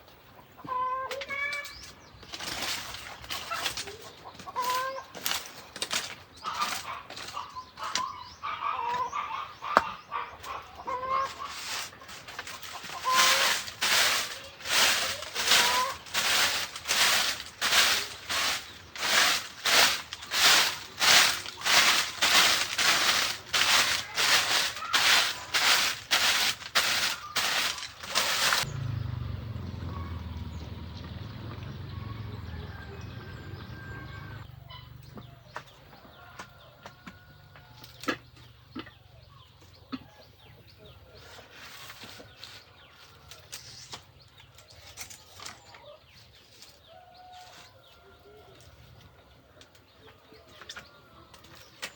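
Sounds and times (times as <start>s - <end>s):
chickens clucking: 0.0s - 28.7s, 29.9s - 51.9s
noisy strokes: 12.8s - 28.6s.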